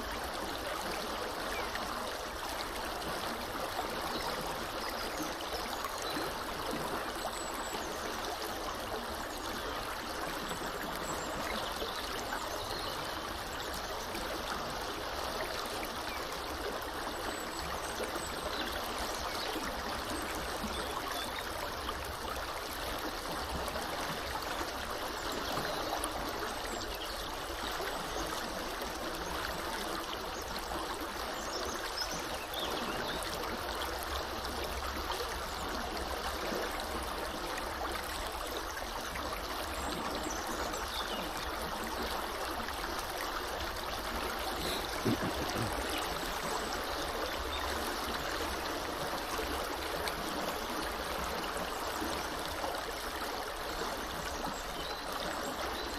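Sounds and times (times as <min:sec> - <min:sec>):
river water rushing: 0:41.7 - 0:52.6.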